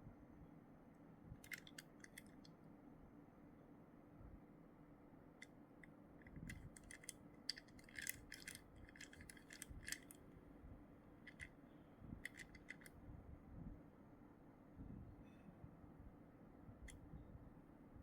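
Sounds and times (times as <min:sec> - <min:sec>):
plastic packaging crinkling: 0:06.5 - 0:10.1.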